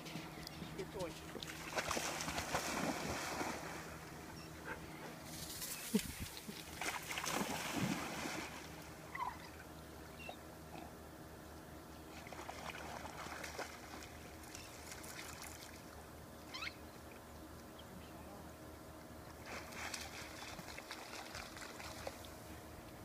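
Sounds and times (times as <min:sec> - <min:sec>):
water splashing and sloshing: 0:00.0 - 0:09.9, 0:12.1 - 0:16.0, 0:19.2 - 0:23.0
steady low hum: 0:00.0 - 0:23.0.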